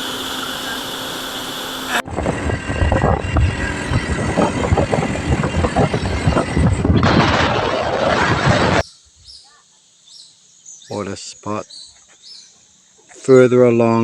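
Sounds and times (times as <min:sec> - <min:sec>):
motorbike rumble: 0:00.0 - 0:08.8
steady water-like rush: 0:00.0 - 0:08.8
wind buffeting on microphone: 0:02.0 - 0:08.8.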